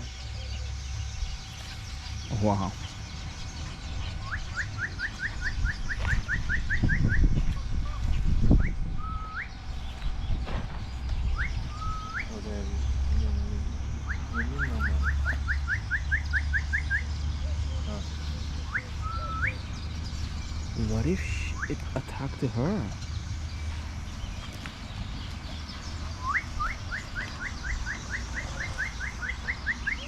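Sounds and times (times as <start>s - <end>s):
swooping two-part whistles: 4.2s - 7.3s, 8.5s - 9.6s, 11.3s - 12.3s, 14.0s - 17.1s, 18.6s - 19.6s, 26.2s - 30.0s.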